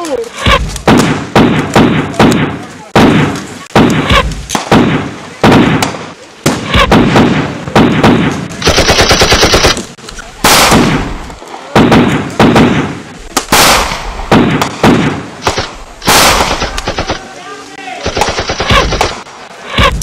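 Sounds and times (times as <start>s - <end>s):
rifle shots echoing: 0.5s - 17.3s, 18.0s - 20.0s
machine-gun burst: 6.6s - 9.8s, 13.5s - 17.2s, 18.0s - 20.0s.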